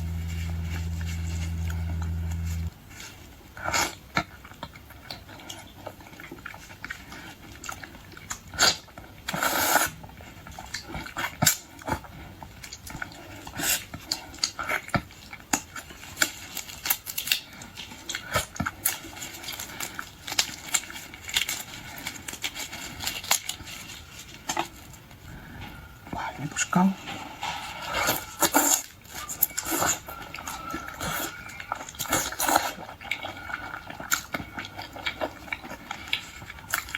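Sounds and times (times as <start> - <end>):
wet chewing and smacking: 28.5 - 36.9.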